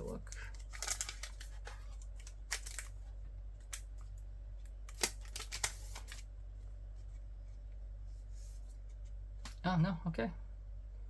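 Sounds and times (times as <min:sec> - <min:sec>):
steady low hum: 0:00.0 - 0:11.0
packaging clicks and rustles: 0:00.1 - 0:04.2, 0:04.8 - 0:06.3.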